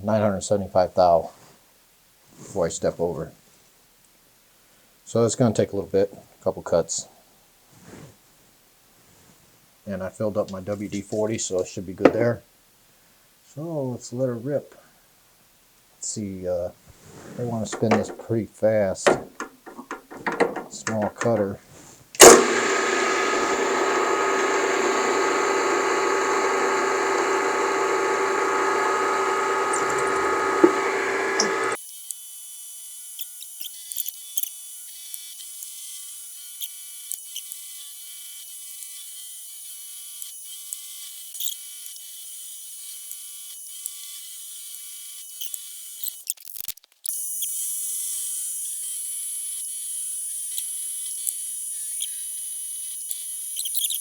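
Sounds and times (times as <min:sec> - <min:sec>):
milling machine cutter whine: 0:17.6 - 0:18.2, 0:22.2 - 0:31.8.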